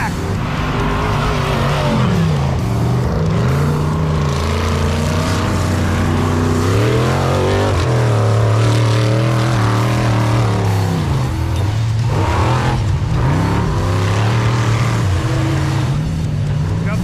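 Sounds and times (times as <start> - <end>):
race truck engines revving: 0.0 - 17.0.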